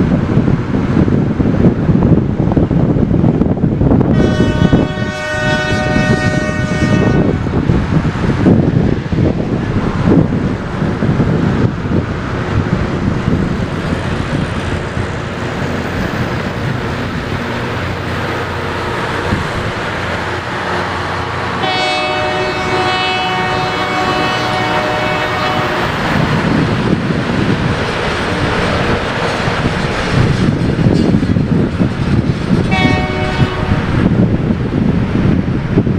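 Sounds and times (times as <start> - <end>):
train rumbling on rails: 0.0 - 35.9
train horn blast: 4.1 - 7.5, 21.6 - 26.2, 32.7 - 34.0.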